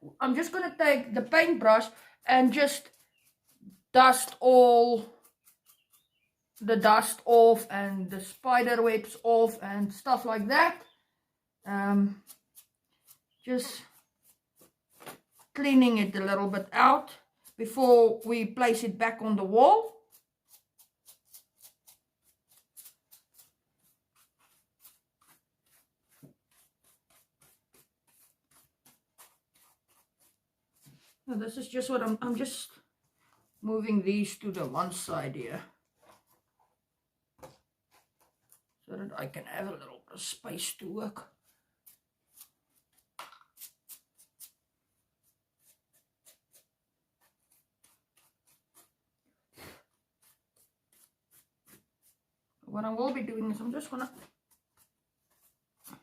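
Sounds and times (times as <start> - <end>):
paintbrush bristles swishing: 1.3 - 10.7, 11.7 - 32.7, 45.2 - 49.0, 49.6 - 52.2.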